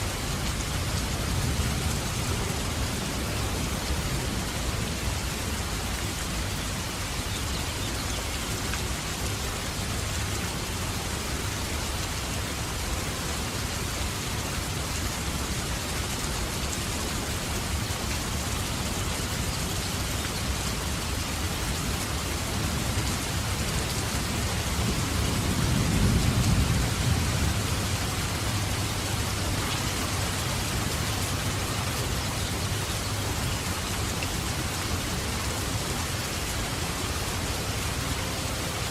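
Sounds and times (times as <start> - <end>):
steady rain falling: 0.0 - 38.9
low rumble of thunder: 24.5 - 31.6.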